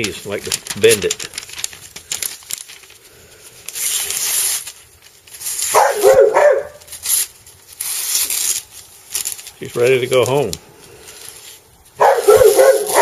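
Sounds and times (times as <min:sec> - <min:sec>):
knife slicing paper: 0:03.7 - 0:13.0
dog barking or whining: 0:05.6 - 0:06.9, 0:12.0 - 0:13.0.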